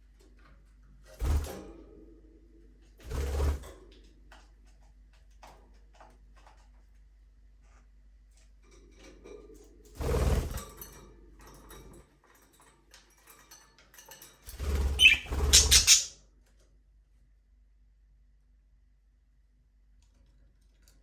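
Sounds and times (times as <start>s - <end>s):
budgerigars scuffling: 14.8s - 16.1s
high budgie chirps: 14.9s - 16.1s.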